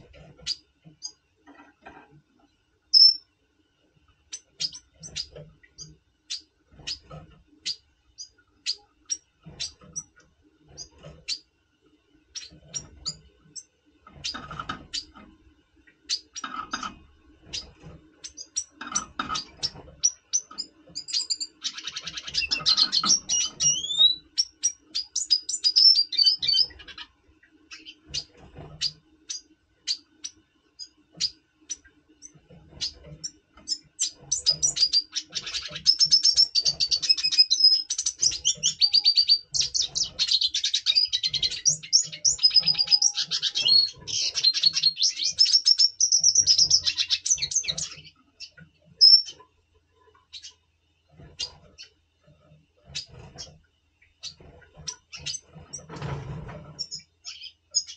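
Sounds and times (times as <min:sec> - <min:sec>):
fast twittering birdsong: 0:00.0 - 0:01.2, 0:02.9 - 0:03.3, 0:04.3 - 0:11.5, 0:12.3 - 0:49.5, 0:50.2 - 0:52.1, 0:52.8 - 0:57.9
bird chirps: 0:02.9 - 0:03.3, 0:04.3 - 0:11.5, 0:12.3 - 0:15.2, 0:15.9 - 0:49.4, 0:50.2 - 0:50.6, 0:56.8 - 0:57.9.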